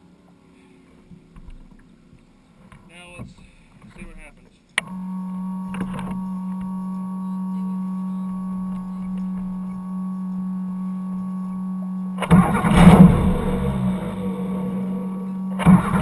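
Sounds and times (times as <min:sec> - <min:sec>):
boat motor humming: 0:04.8 - 0:16.0
sudden loud rush of noise: 0:12.2 - 0:16.0.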